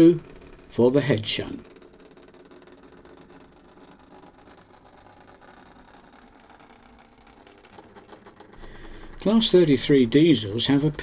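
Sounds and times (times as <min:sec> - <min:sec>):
model locomotive running: 0:00.0 - 0:11.0.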